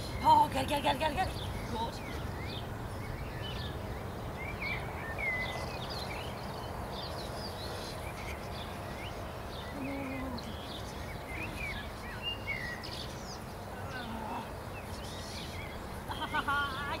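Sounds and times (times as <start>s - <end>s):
low background noise: 0.0s - 17.0s
small birds chirping: 0.0s - 17.0s.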